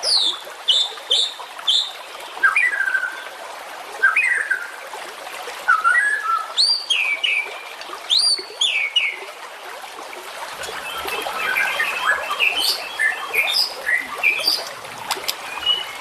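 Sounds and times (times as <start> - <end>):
songbird singing whistled song: 0.0 - 3.2, 10.6 - 14.7, 15.3 - 16.0.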